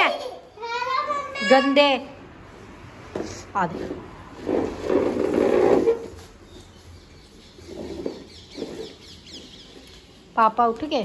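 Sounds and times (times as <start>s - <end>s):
small birds chirping: 6.3s - 11.0s.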